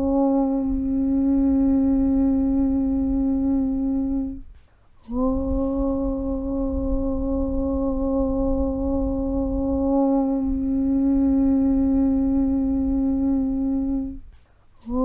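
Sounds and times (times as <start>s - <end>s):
low rumble: 0.0s - 15.0s
person chanting low hum: 0.0s - 15.0s
breath: 4.5s - 4.9s.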